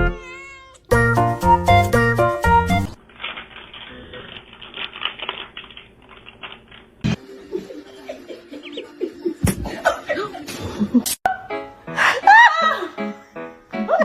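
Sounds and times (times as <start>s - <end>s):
piano-like music: 11.3s - 14.0s.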